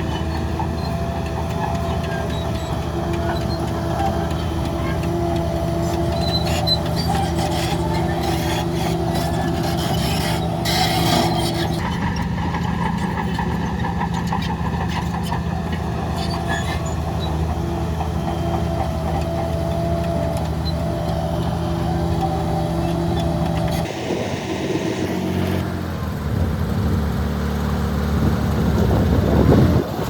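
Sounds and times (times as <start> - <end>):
diesel machinery running: 0.0 - 30.0
high machine whine: 23.8 - 25.6.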